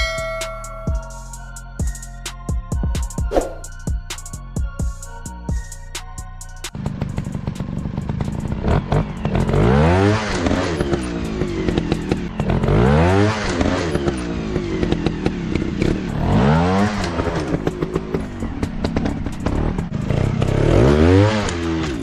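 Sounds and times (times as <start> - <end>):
sharp clicks and clatter: 6.7 - 9.6
dirt bike engine revving: 6.7 - 22.0.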